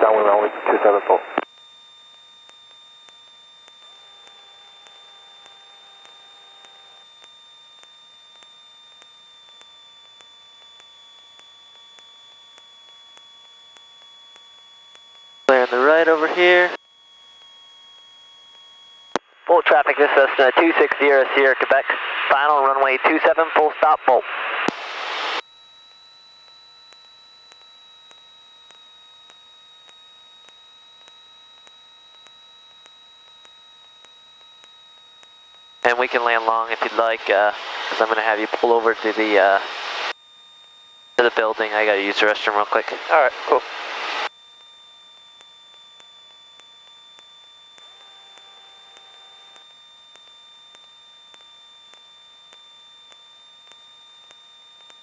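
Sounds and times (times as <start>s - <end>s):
low hum: 0.0s - 25.4s
high-pitched electrical whine: 0.0s - 55.0s
light ticks: 26.4s - 35.6s, 44.6s - 55.0s.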